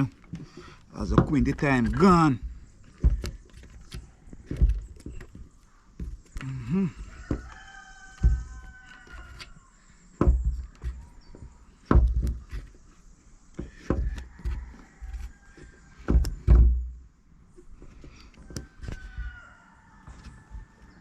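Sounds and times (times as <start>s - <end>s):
dull heavy thumps: 0.0s - 9.5s, 10.2s - 12.9s, 13.5s - 15.2s, 16.0s - 17.1s.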